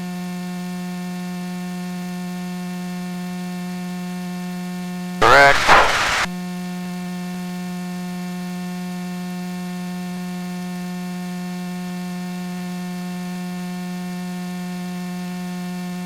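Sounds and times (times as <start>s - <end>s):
buzzy intercom hum: 5.2s - 6.3s.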